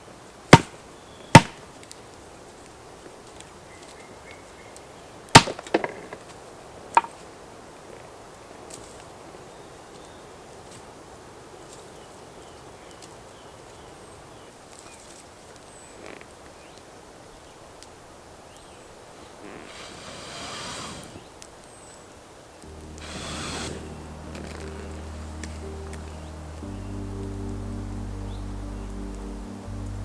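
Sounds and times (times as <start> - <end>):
rustling scrape: 19.2 - 21.3.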